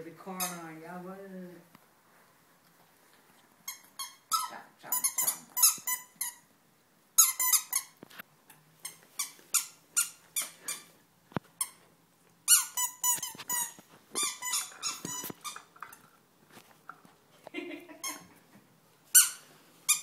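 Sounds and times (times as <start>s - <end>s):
squeaky dog toy squeaking: 0.4s - 0.7s, 3.6s - 6.5s, 7.2s - 8.0s, 8.8s - 10.9s, 12.5s - 15.7s, 19.1s - 20.0s.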